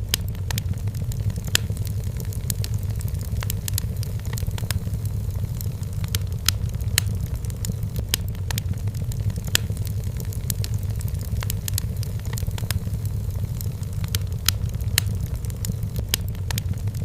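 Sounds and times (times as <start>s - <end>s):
fire pops and snaps: 0.0s - 17.0s
low roar of flames: 0.0s - 17.0s
wood fire crackling: 0.0s - 17.0s.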